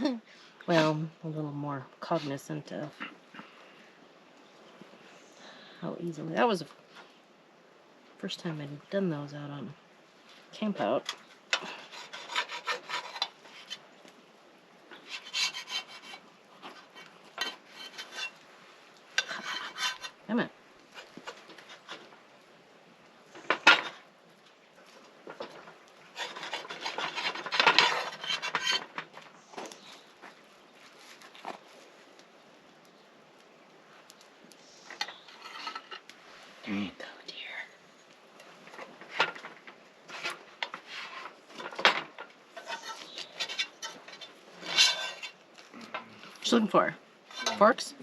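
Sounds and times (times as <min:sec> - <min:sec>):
utensil scraping cookware: 0:10.7 - 0:13.8, 0:14.9 - 0:18.4, 0:19.1 - 0:20.2, 0:25.3 - 0:29.2, 0:34.9 - 0:36.1, 0:38.8 - 0:46.6, 0:47.3 - 0:48.0.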